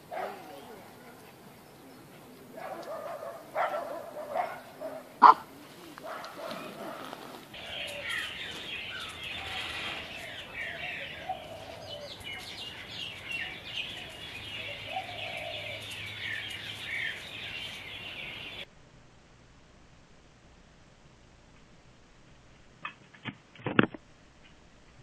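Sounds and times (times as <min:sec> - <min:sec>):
birds chirping busily: 0:00.0 - 0:18.7
lower bird calls: 0:00.0 - 0:18.7.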